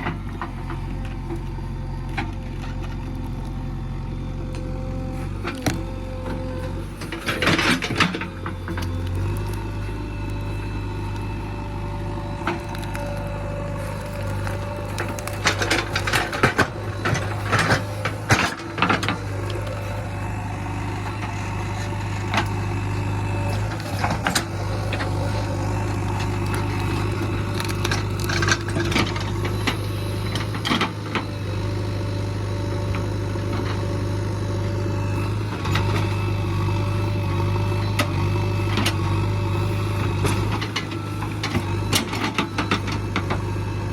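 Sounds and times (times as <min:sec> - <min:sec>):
diesel engine running: 0:00.0 - 0:43.9
knocks clanks and rattles: 0:12.4 - 0:31.4.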